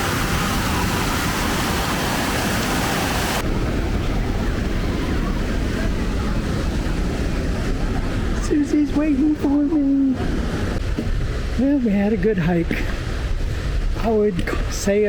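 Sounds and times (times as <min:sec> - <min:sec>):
waterfall rushing: 0:00.0 - 0:15.0
low rumble: 0:03.4 - 0:14.7.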